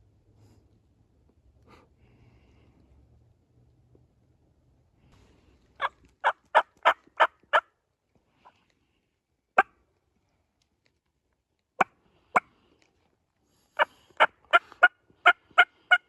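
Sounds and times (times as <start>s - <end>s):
turkey yelping: 5.8s - 7.6s.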